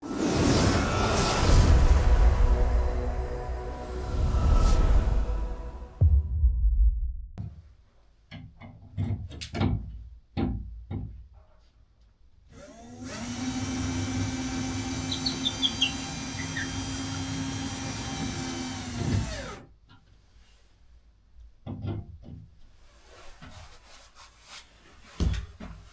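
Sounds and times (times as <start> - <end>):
small electric motor running: 12.5 - 19.6.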